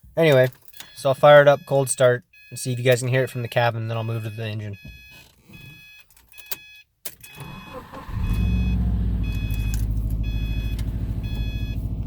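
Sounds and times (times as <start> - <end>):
car warning chime: 0.2 - 12.0
car engine starting and idling: 7.1 - 12.0.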